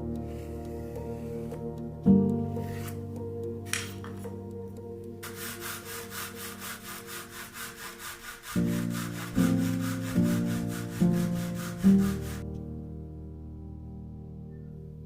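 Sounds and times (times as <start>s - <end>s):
background music: 0.0s - 15.0s
hand saw cutting wood: 5.2s - 12.4s.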